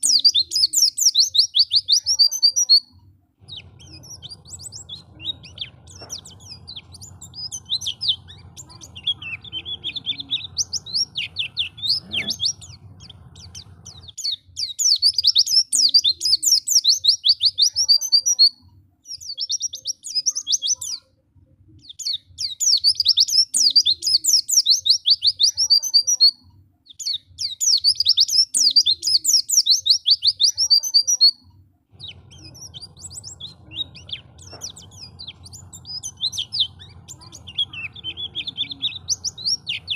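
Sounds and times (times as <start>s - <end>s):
bird twittering song: 0.0s - 21.1s, 21.8s - 39.9s
low background rumble: 3.2s - 14.2s, 31.6s - 39.9s.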